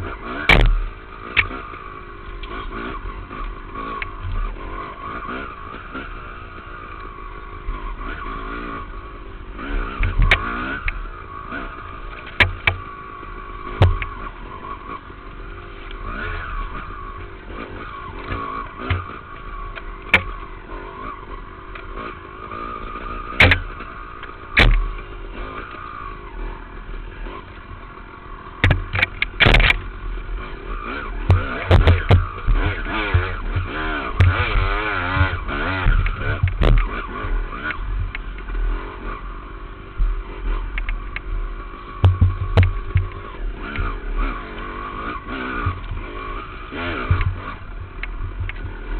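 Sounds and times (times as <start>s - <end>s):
dirt bike engine revving: 0.0s - 48.9s
sharp knocks and clatter: 0.4s - 1.6s, 10.0s - 11.0s, 12.1s - 12.9s, 13.7s - 14.3s, 18.2s - 20.4s, 23.3s - 25.8s, 28.5s - 29.8s, 30.9s - 38.6s, 42.0s - 44.7s, 46.8s - 48.9s.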